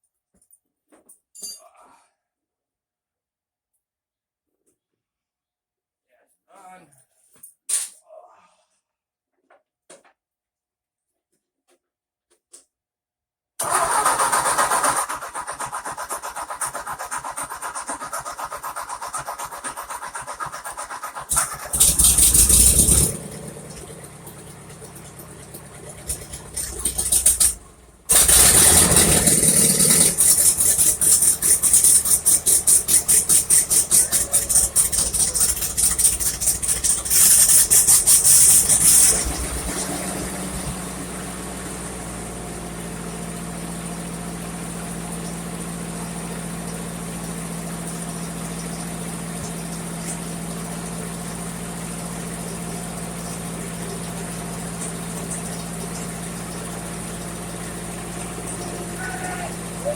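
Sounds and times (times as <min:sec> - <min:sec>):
tractor engine starting and idling: 0:13.6 - 0:59.9.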